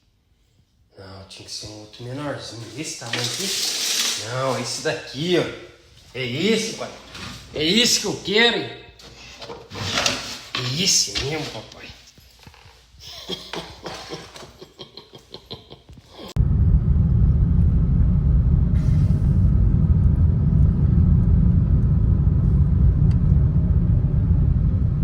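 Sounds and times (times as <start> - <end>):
car road rumble from inside: 16.4 - 25.0.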